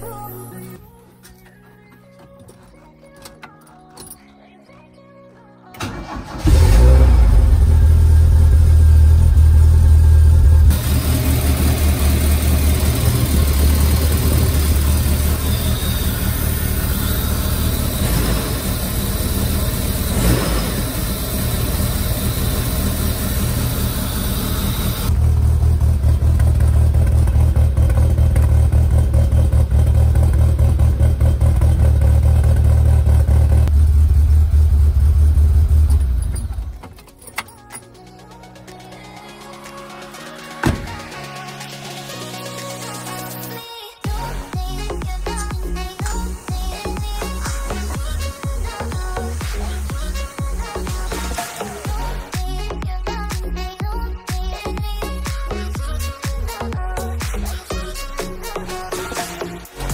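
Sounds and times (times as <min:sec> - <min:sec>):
car engine starting and idling: 0:05.7 - 0:43.2, 0:44.1 - 0:54.0.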